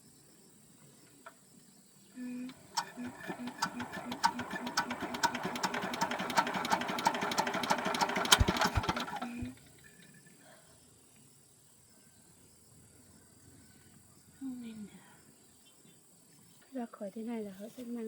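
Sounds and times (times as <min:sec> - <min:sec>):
diesel engine turning over knocking: 0:02.7 - 0:09.7.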